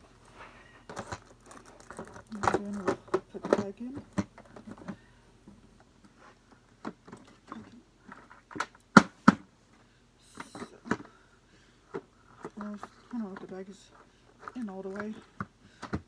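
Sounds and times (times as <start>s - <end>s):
plastic clicks and knocks: 0.9s - 5.0s.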